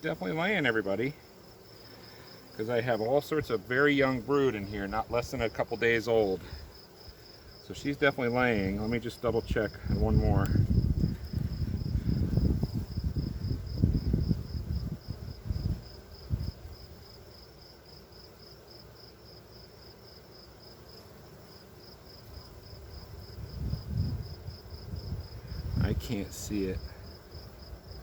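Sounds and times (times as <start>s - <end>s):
insect chirping: 0.0s - 28.0s.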